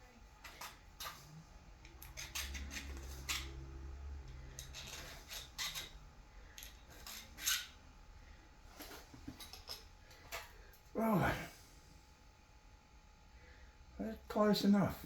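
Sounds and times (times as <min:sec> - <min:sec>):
hand scraping and clicking strokes: 0:00.4 - 0:07.7.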